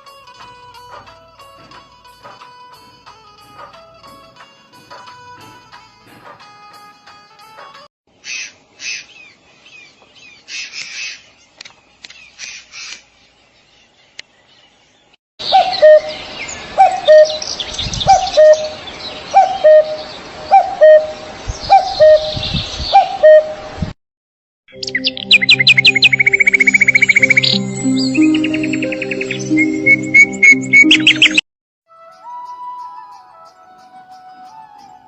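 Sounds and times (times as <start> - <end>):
birds chirping: 0.4 - 23.6, 24.7 - 31.4
low repeating bird call: 15.4 - 16.2, 16.8 - 23.6.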